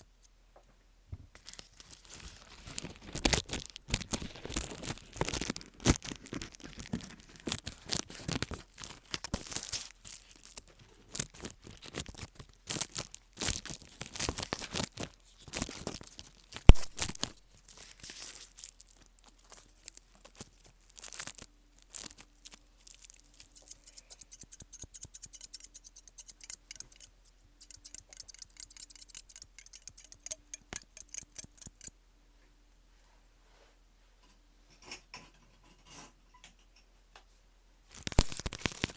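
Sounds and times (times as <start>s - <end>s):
crackling and crinkling clicks: 1.3s - 31.9s, 37.9s - 38.9s.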